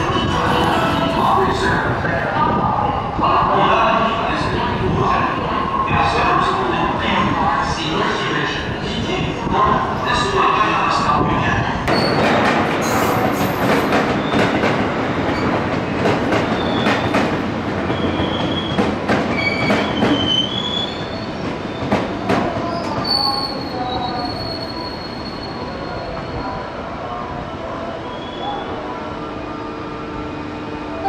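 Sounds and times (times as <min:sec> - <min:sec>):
train wheels and brakes squealing: 0:11.9 - 0:15.6, 0:16.4 - 0:17.3, 0:17.9 - 0:26.8, 0:27.8 - 0:28.8.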